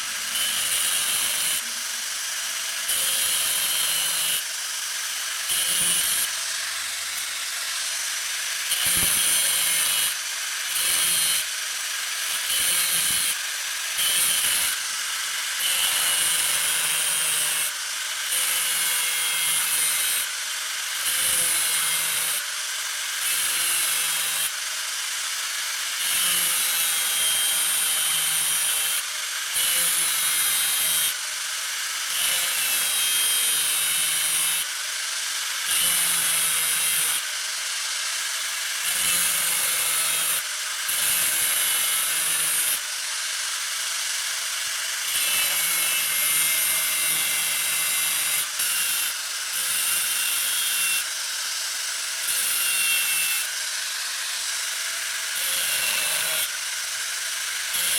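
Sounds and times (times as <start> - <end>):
tool rasping on metal: 0.0 - 17.7, 45.1 - 51.1, 52.2 - 57.9.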